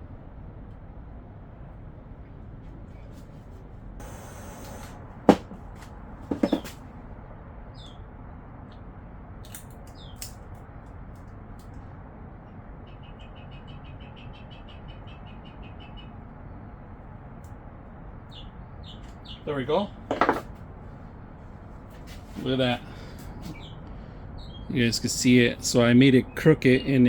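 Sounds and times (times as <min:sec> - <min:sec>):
knocks of small hard objects: 0:05.3 - 0:05.6, 0:06.3 - 0:06.8, 0:20.1 - 0:20.5
birds chirping: 0:06.3 - 0:06.8, 0:12.8 - 0:16.2, 0:18.3 - 0:20.4, 0:22.5 - 0:27.0.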